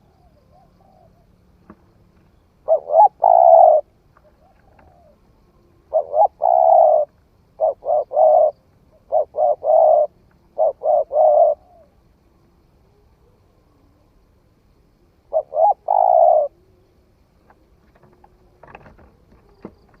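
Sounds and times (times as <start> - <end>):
dove cooing: 0.0 - 1.4, 2.3 - 12.0, 15.2 - 20.0.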